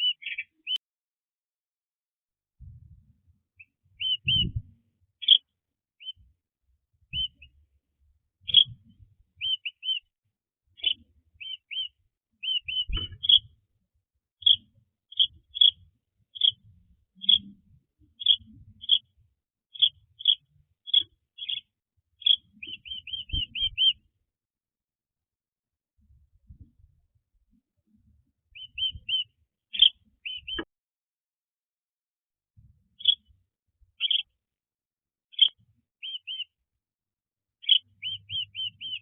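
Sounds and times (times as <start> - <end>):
small bird chirping: 0.0 - 0.8, 3.6 - 4.6, 5.2 - 6.2, 7.1 - 7.6, 8.4 - 10.1, 10.8 - 13.6, 14.4 - 24.1, 28.5 - 30.7, 32.9 - 33.4, 34.0 - 34.4, 35.3 - 36.6, 37.6 - 39.0.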